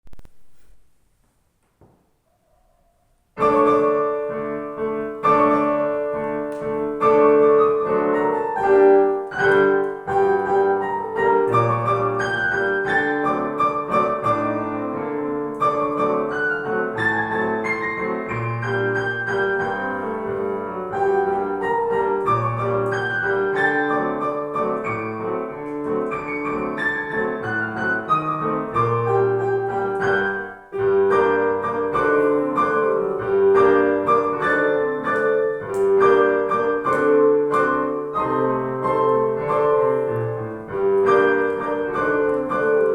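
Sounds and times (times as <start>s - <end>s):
piano duet classical piece: 1.7s - 42.9s.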